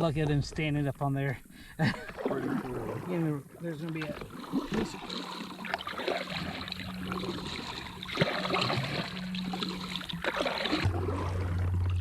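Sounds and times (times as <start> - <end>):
water lapping against kayak hull: 0.0 - 12.0
steady low hum: 0.9 - 12.0.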